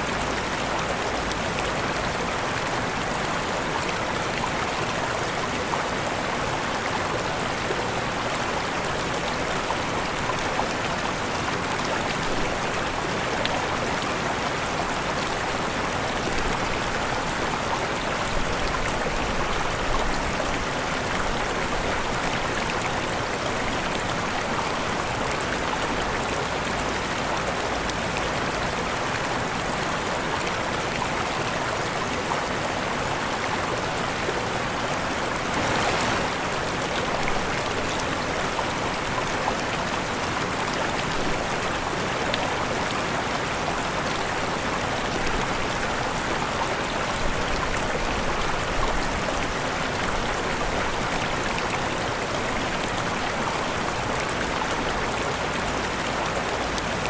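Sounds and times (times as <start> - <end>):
waterfall rushing: 27.4 - 57.0.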